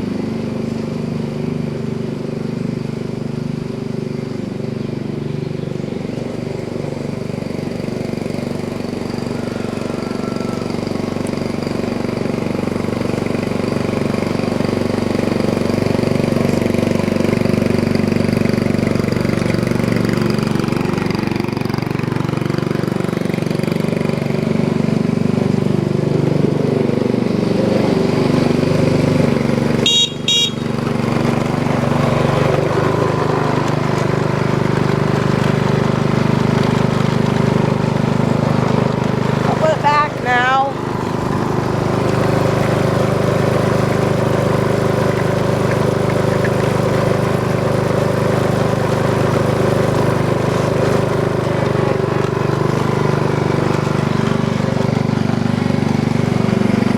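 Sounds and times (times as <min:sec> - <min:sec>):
small tractor engine running: 0:00.0 - 0:56.9
short high beep: 0:29.8 - 0:30.7.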